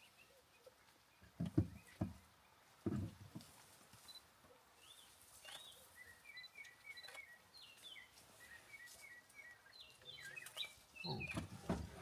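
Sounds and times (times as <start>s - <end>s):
faint birdsong whistles: 4.8s - 11.7s.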